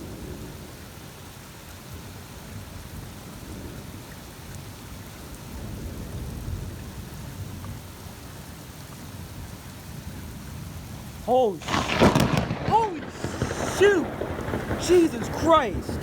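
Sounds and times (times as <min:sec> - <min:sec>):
heavy rain: 0:00.0 - 0:16.0
thunder rumbling: 0:11.3 - 0:16.0.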